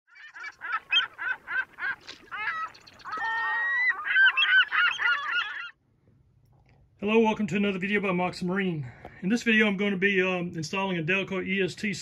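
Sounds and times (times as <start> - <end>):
honking bird calls: 0.1 - 5.8.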